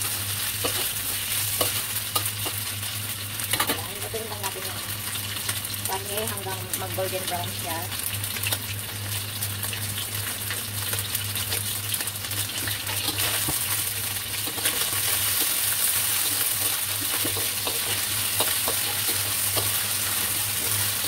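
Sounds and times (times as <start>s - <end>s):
pork sizzling in a wok: 0.0s - 21.0s
metal spatula scraping wok: 14.4s - 21.0s.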